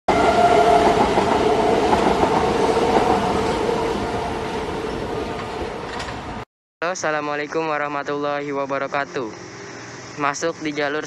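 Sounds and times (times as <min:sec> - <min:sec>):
train running on rails: 0:00.1 - 0:06.4.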